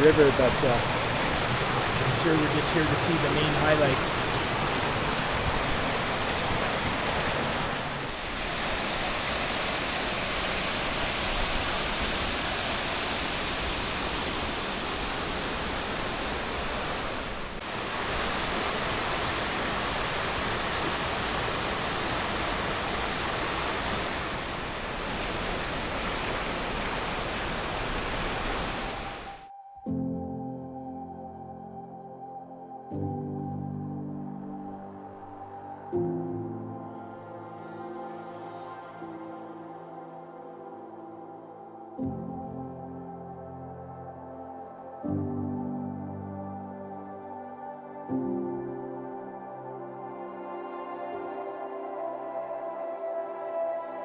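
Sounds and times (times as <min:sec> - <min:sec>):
waterfall rushing: 0:00.0 - 0:29.5.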